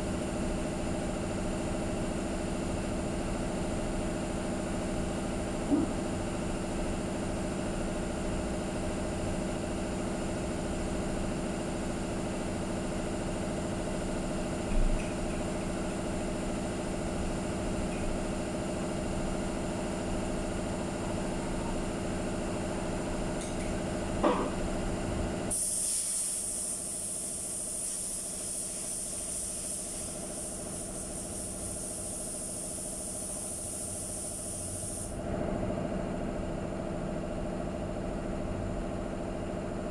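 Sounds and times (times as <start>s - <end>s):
steady machine hum: 0.0s - 25.6s
spray gun air hiss: 25.5s - 35.2s.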